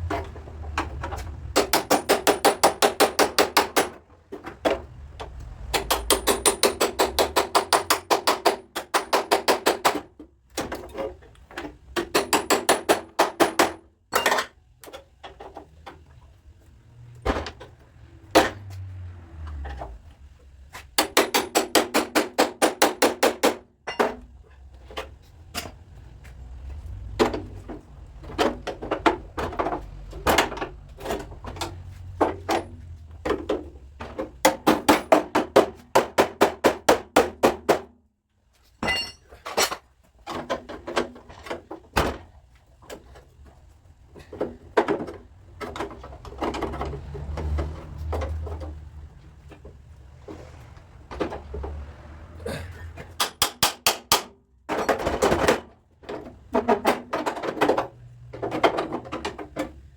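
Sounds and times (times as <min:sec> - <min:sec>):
hammer tapping sheet metal: 0:01.6 - 0:04.0, 0:05.7 - 0:10.0.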